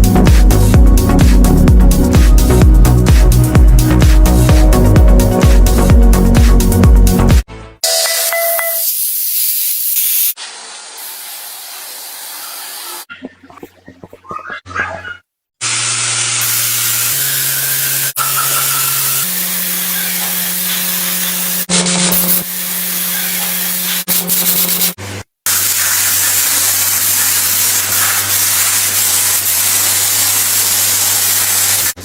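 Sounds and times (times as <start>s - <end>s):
loud spraying hiss: 8.8s - 13.1s, 15.6s - 22.4s, 25.5s - 32.0s.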